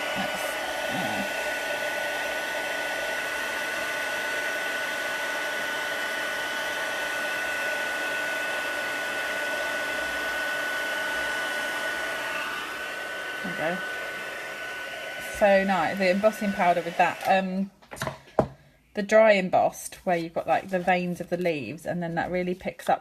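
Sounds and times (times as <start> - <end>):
heat tool blowing with high whine: 0.0 - 17.6.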